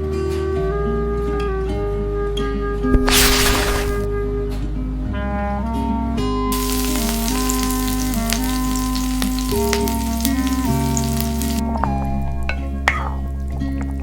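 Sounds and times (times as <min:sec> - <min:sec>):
crackling hiss: 0:02.9 - 0:04.1.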